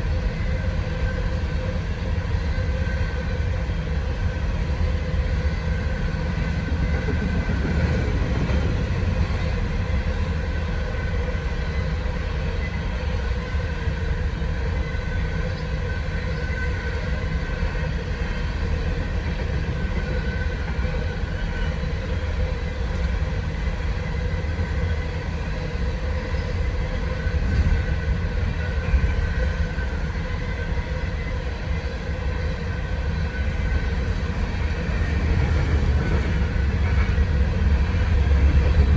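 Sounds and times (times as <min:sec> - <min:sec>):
train wheels rumbling on rails: 0:00.0 - 0:38.9
thin steady ringing tones: 0:09.1 - 0:35.3.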